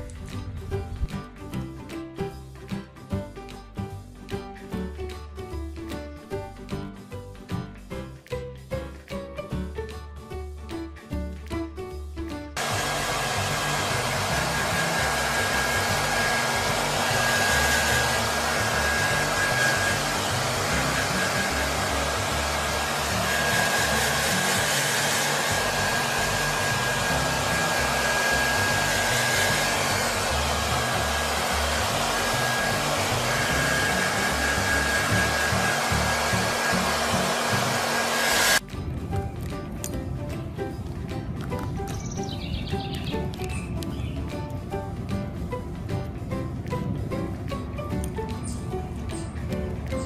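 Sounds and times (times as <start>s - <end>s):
small appliance motor whirring: 12.6s - 38.6s.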